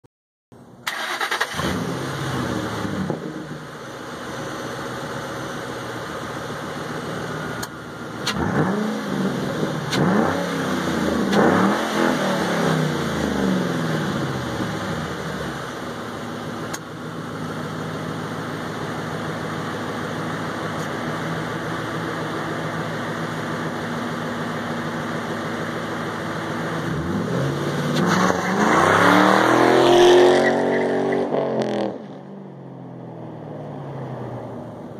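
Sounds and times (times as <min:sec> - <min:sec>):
car engine starting and idling: 0:00.6 - 0:34.9
car pulling away: 0:00.8 - 0:34.9
engine revving: 0:00.9 - 0:03.6, 0:07.6 - 0:15.8, 0:26.5 - 0:32.3.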